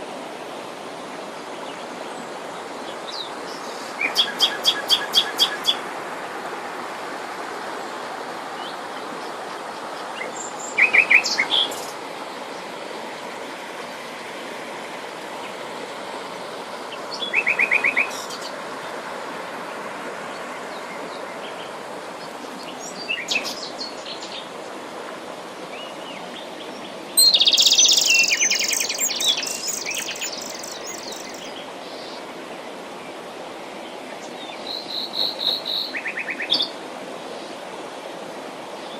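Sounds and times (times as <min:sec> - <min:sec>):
songbirds singing trilled phrases: 0:27.2 - 0:31.5.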